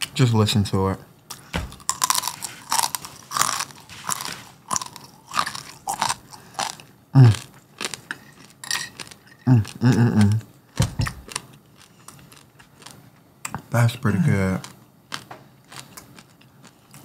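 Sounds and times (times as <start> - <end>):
crunchy chewing: 1.3 - 10.5, 11.1 - 13.6, 14.6 - 17.0
person humming mm: 7.2 - 7.4, 9.5 - 10.5.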